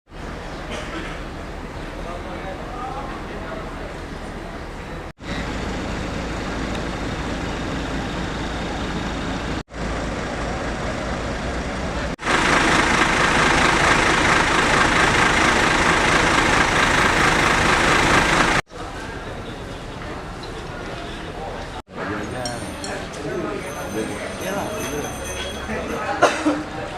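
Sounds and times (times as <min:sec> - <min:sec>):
motor vehicle running on road: 0:04.1 - 0:18.7.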